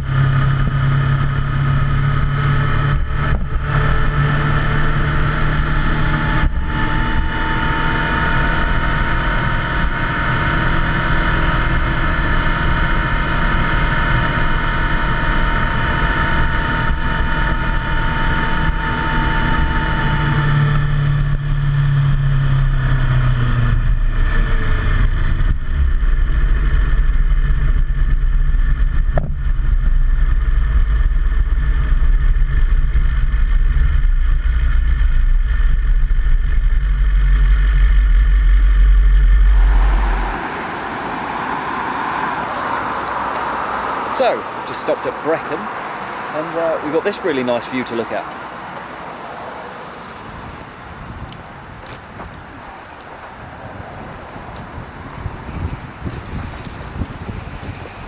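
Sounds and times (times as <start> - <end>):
motorcycle engine cruising: 0.0 - 58.0
wind and road noise: 0.0 - 58.0.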